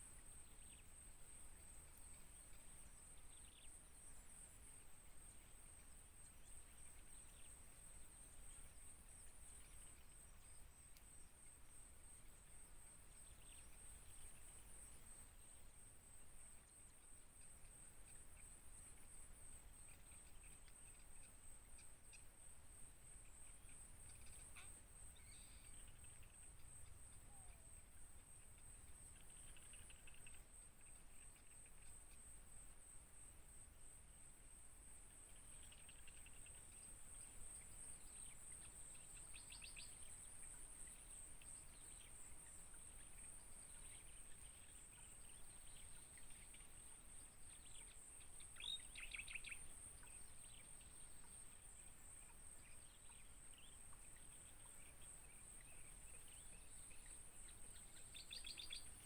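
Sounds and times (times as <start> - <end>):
faint bird chirps: 0.0 - 11.5, 12.2 - 32.4, 35.1 - 59.0
high-pitched insect trill: 12.0 - 59.0.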